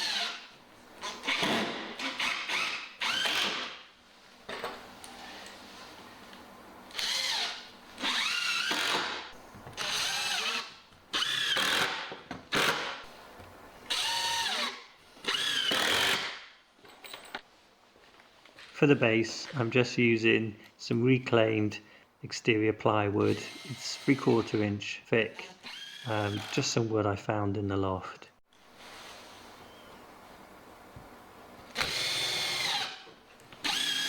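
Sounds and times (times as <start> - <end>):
impact driver driving screws: 6.9 - 9.2.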